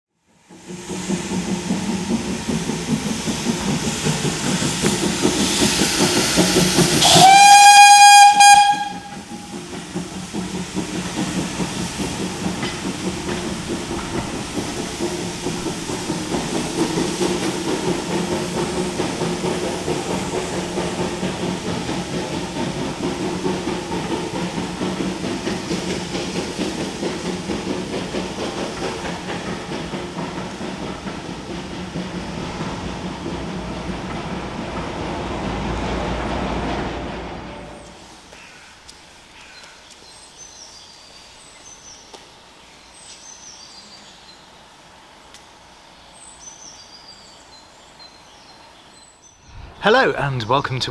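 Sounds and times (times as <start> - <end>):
steam locomotive chugging: 0.2 - 49.2
steam hissing: 0.2 - 50.9
steam whistle: 7.0 - 9.5.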